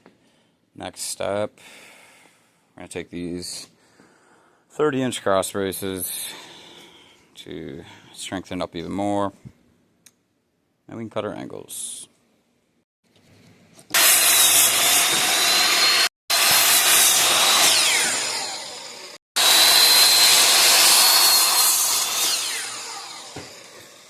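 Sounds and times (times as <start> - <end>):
power saw cutting wood: 13.9 - 24.0.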